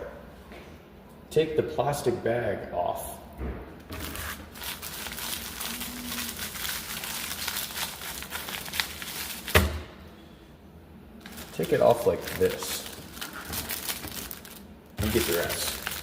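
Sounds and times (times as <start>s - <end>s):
plastic wrap crinkling: 3.9s - 9.6s, 11.2s - 16.0s.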